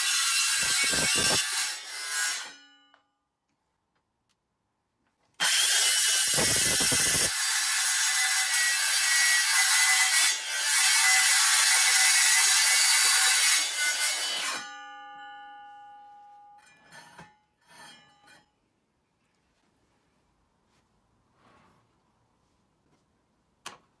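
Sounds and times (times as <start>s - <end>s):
circular saw cutting: 0.0s - 2.6s, 5.4s - 14.8s
faint rubbing sounds: 19.2s - 23.3s.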